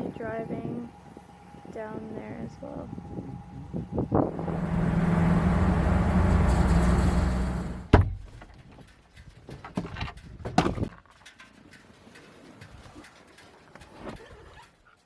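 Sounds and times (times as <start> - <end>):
vehicle engine running: 0.0 - 7.9.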